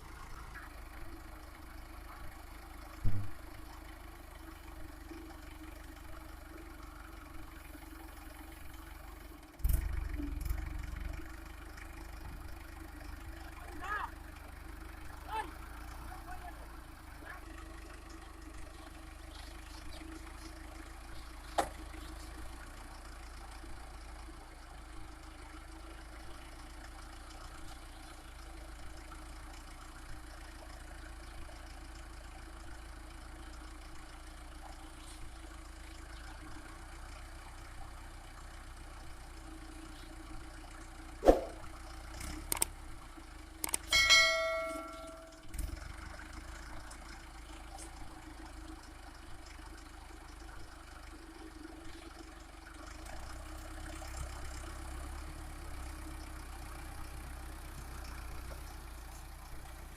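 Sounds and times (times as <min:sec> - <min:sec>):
tractor diesel engine running: 0:00.0 - 0:59.9
ringing bell-like tone: 0:43.9 - 0:45.6.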